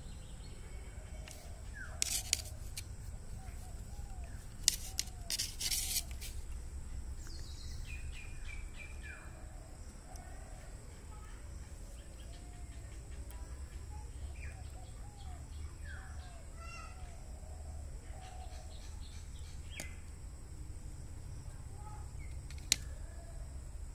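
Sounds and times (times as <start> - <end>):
birds chirping and whistling: 7.2 - 9.3.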